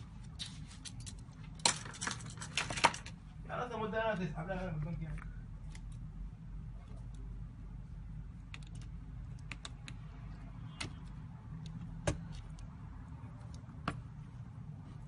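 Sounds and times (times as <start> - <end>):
steady low hum: 0.0 - 15.0
small clicks and taps: 8.5 - 10.0.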